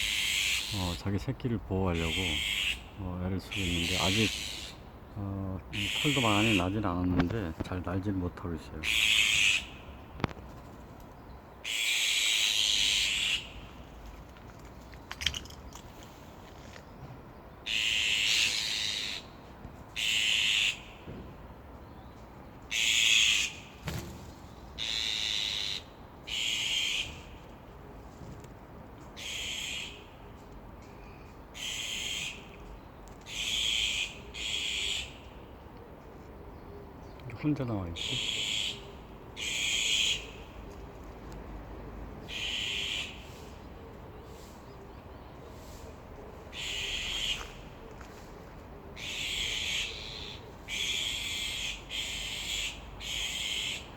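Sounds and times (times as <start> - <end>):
magpies harsh rasping calls: 0.0 - 1.0, 1.8 - 5.0, 5.6 - 6.9, 8.8 - 10.2, 11.6 - 13.7, 17.6 - 19.4, 20.0 - 21.1, 22.7 - 23.8, 24.7 - 27.4, 29.2 - 30.1, 31.5 - 32.6, 33.2 - 35.4, 37.4 - 40.6, 42.2 - 43.7, 46.5 - 47.8, 49.0 - 53.9.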